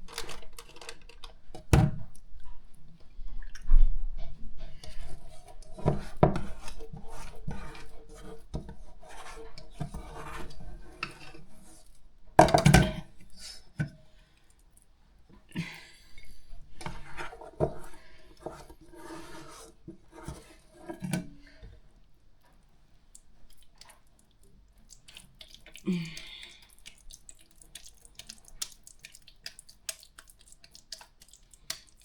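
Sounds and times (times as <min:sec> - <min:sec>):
wet squishing and patting of meat: 0:22.9 - 0:32.0.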